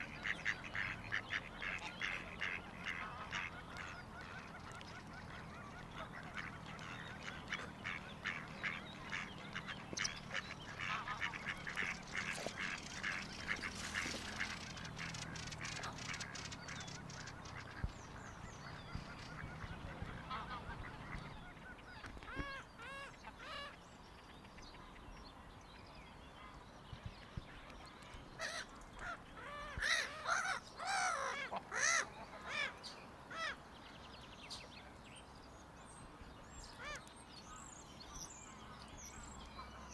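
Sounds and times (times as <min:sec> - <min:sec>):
geese honking: 0:00.0 - 0:17.8, 0:19.0 - 0:21.7.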